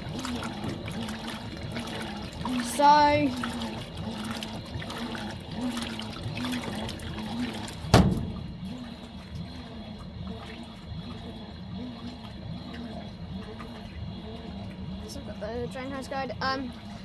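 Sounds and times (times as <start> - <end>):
washing machine motor whining: 0.0 - 17.0
water sloshing in a tub: 0.0 - 17.0
sharp thump: 7.9 - 8.6.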